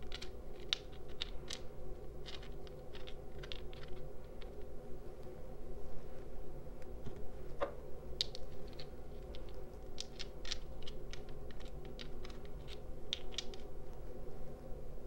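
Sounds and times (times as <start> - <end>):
small stones clicking together: 0.0 - 4.6, 8.2 - 13.7
faint steady hum: 0.0 - 15.0.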